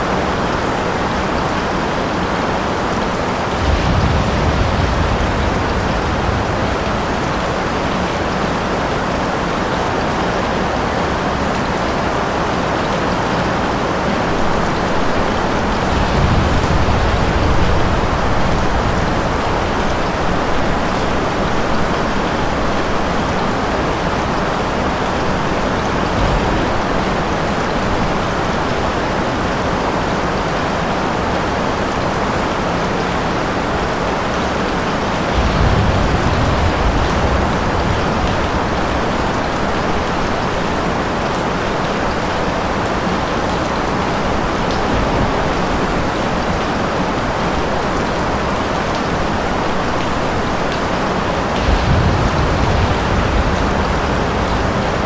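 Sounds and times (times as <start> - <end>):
heavy rain splashing: 0.0 - 55.0
low rumble: 3.4 - 8.6, 35.3 - 40.2, 51.6 - 55.0.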